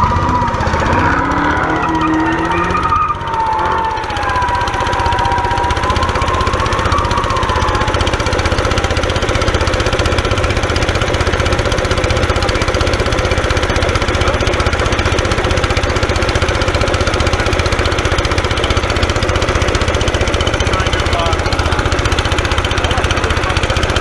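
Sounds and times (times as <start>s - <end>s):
high squeal: 0.0s - 8.8s
air compressor chugging: 0.0s - 24.0s.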